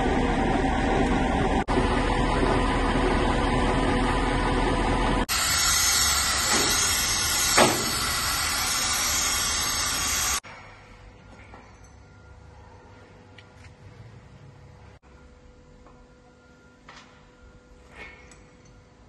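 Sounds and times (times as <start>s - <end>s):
loud hissing and rushing noise: 5.3s - 10.4s.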